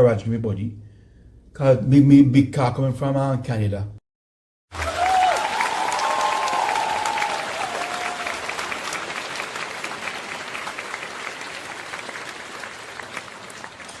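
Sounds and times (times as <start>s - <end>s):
many hands clapping: 4.7s - 14.0s.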